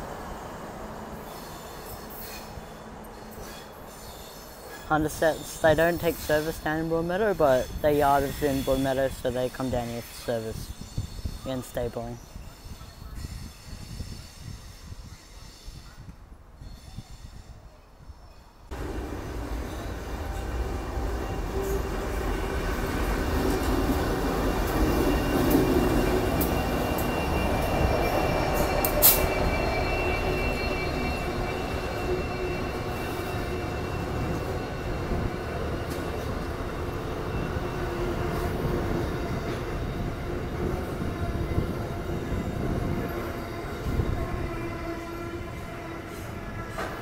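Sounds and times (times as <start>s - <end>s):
train wheels rumbling on rail: 18.2s - 47.0s.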